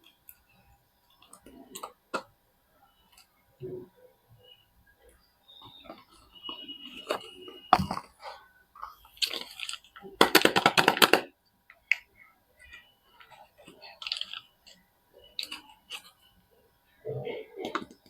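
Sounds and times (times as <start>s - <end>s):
wrapping crinkling: 12.6s - 14.8s.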